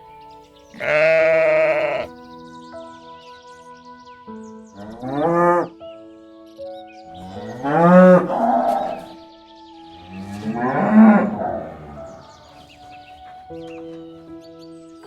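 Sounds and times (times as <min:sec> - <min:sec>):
cow mooing: 0:00.8 - 0:02.1, 0:07.2 - 0:09.1, 0:10.0 - 0:12.6.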